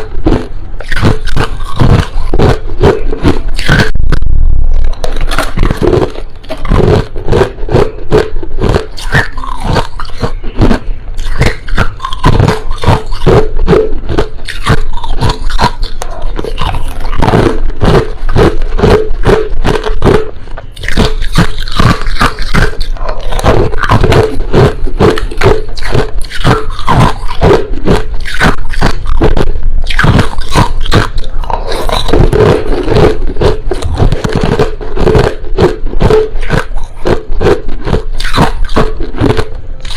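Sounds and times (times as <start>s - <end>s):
chewing crushed ice: 0.0s - 4.0s, 4.9s - 39.9s.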